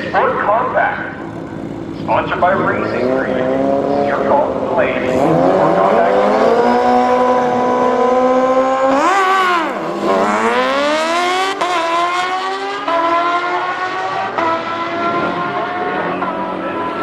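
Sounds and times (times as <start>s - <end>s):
drag racing engine accelerating: 0.0s - 17.0s.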